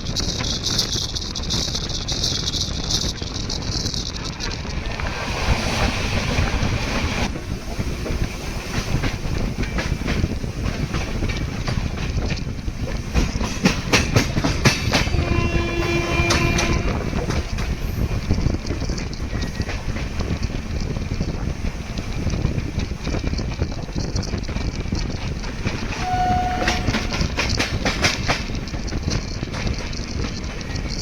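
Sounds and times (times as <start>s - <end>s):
train rumble: 0.0s - 31.0s
wheels clacking over rail joints: 0.0s - 31.0s
train horn: 15.0s - 18.1s, 25.9s - 27.6s.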